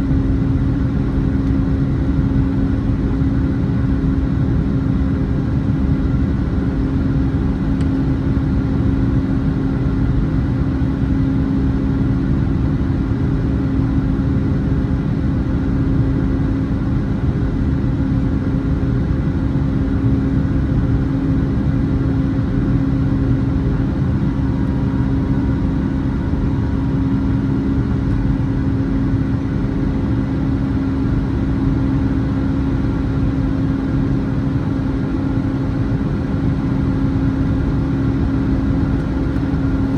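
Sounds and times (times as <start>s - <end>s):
jet engines droning: 19.8s - 39.9s.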